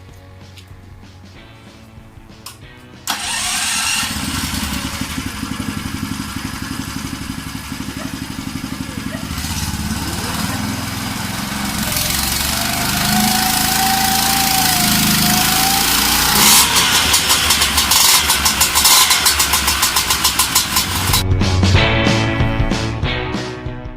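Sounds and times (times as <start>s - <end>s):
engine starter whine: 3.0s - 21.2s
two-stroke engine running: 3.1s - 21.2s.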